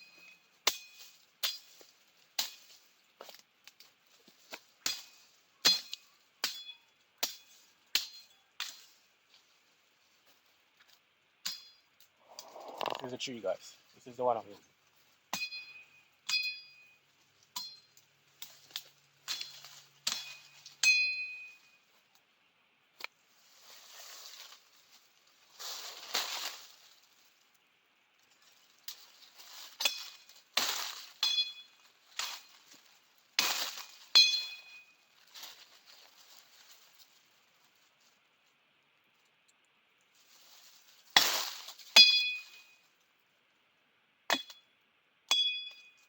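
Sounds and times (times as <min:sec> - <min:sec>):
metal blade chopping brush: 0:00.0 - 0:01.7, 0:18.7 - 0:21.6, 0:29.7 - 0:32.6, 0:33.4 - 0:34.9, 0:41.1 - 0:42.7
brush rustling: 0:17.0 - 0:22.2, 0:23.0 - 0:38.6, 0:40.0 - 0:43.0.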